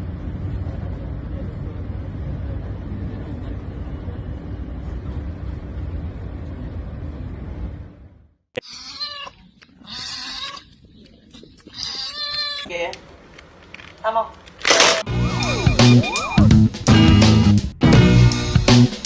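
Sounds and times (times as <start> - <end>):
animal calling: 8.6 - 12.7, 15.1 - 16.6.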